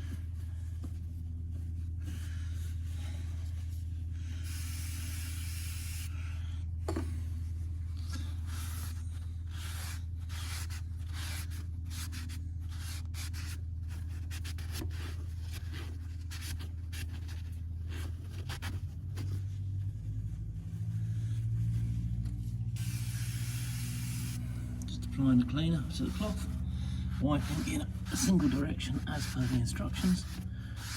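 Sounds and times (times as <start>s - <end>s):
low machine hum: 0.0s - 30.9s
rag rubbing on metal: 25.5s - 30.9s.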